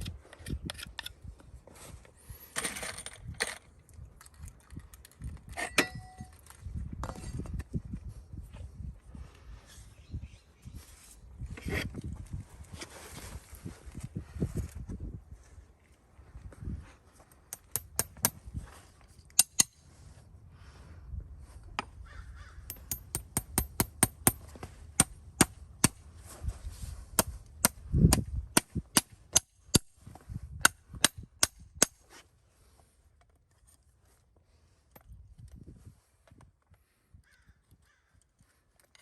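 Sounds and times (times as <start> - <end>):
farrier tools clicking on hoof: 17.5 - 18.4, 22.6 - 26.0.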